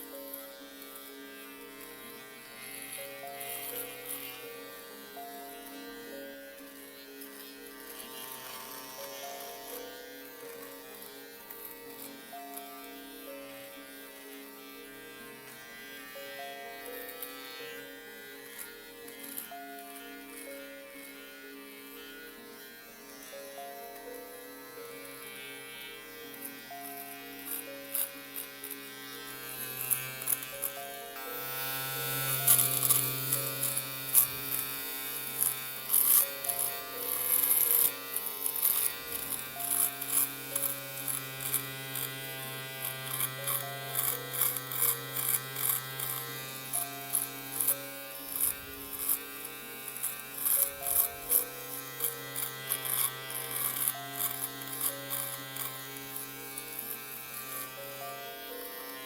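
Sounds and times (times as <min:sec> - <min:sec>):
electric shaver buzzing: 0:00.0 - 0:59.0
gentle melodic music: 0:00.0 - 0:59.0.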